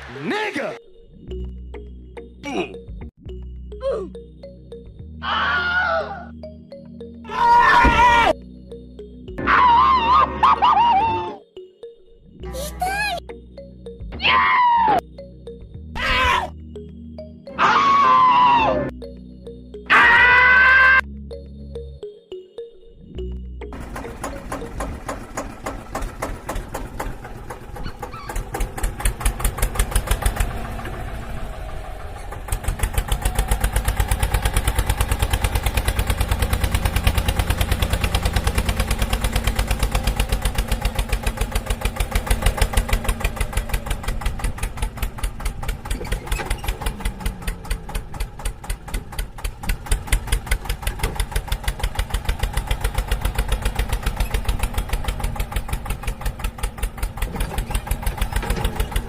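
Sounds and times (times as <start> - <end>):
tractor engine chugging: 23.2 - 59.0.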